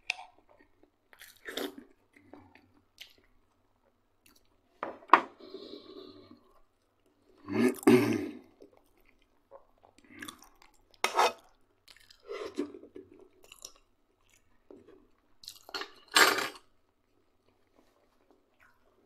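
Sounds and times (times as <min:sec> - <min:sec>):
spoon scraping frying pan: 0:11.0 - 0:11.4.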